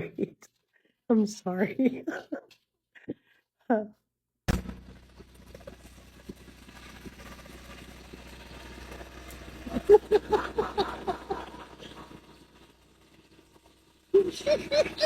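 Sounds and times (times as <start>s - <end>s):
person laughing: 1.7s - 3.2s, 9.6s - 12.2s, 14.1s - 15.0s
lawn tractor engine running: 4.5s - 15.0s.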